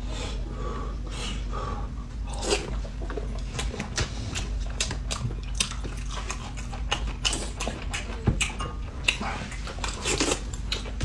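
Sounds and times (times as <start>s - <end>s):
people chewing food: 1.2s - 11.0s.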